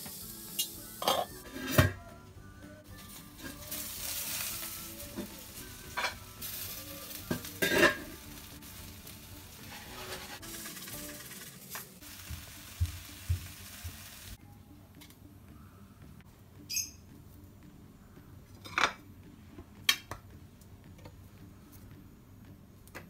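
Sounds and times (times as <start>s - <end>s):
sweet potato slices sizzling: 0.0s - 1.0s, 2.9s - 14.4s
metal tongs scraping a pan: 5.9s - 6.2s, 7.3s - 8.1s, 9.6s - 11.8s.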